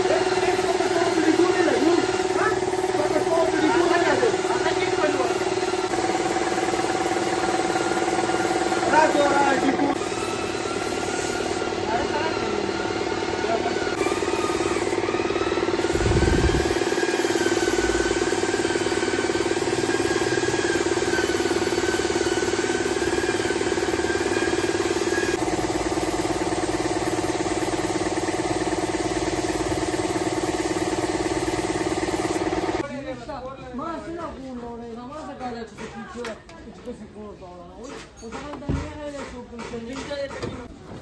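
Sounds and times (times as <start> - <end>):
machine buzzing: 14.0 - 26.9
pulsing mechanical hum: 15.6 - 16.9.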